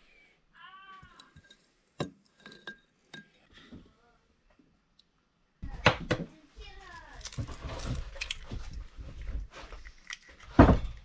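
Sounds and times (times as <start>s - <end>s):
glass and dishware clinking: 1.4s - 3.4s.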